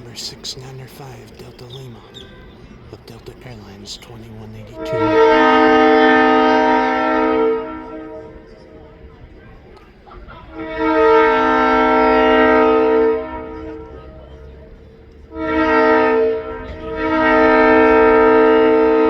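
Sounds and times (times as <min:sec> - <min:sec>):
train horn blasts: 0:04.3 - 0:19.0.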